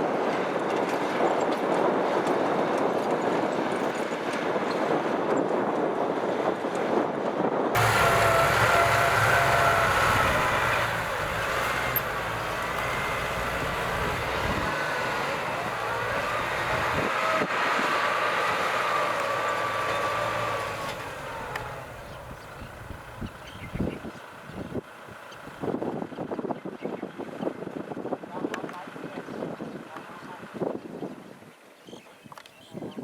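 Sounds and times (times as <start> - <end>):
tractor diesel engine humming: 7.8 - 25.7.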